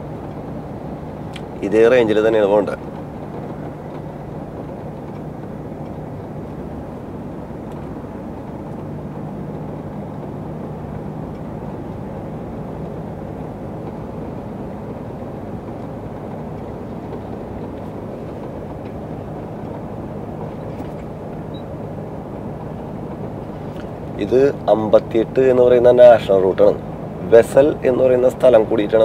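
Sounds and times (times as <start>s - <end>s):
road noise: 0.0s - 29.0s
truck engine hum: 0.0s - 29.0s.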